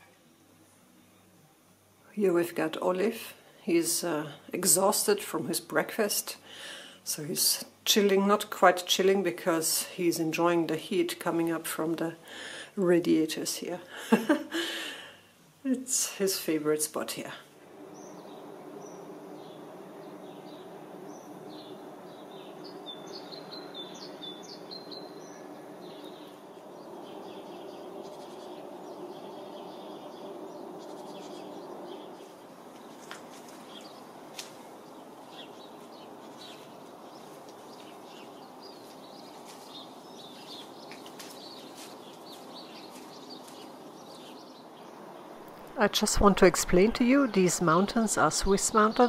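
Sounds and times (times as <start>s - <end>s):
steady background hum: 0.0s - 49.0s
small birds chirping: 16.1s - 49.0s.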